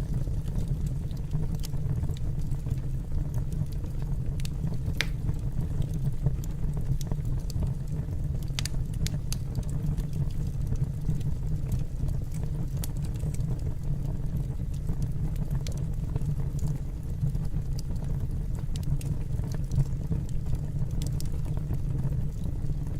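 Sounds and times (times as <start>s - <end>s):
fire crackling and popping: 0.0s - 22.9s
low rumble of flames: 0.0s - 22.9s.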